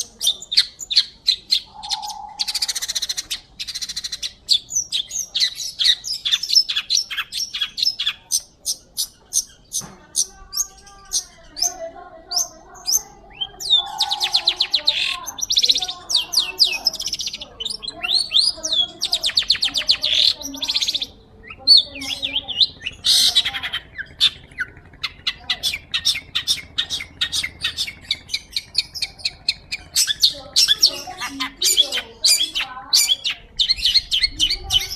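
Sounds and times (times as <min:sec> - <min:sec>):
bird singing rattling trills: 0:00.0 - 0:34.9.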